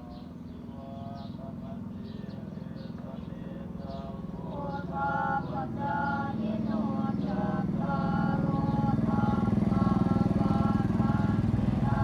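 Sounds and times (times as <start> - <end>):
small motorcycle engine running: 7.0 - 12.0.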